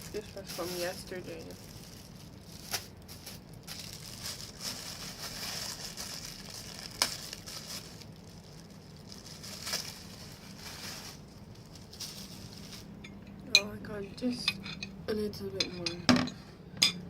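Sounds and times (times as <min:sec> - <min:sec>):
tissue paper crinkling: 0:00.0 - 0:12.9.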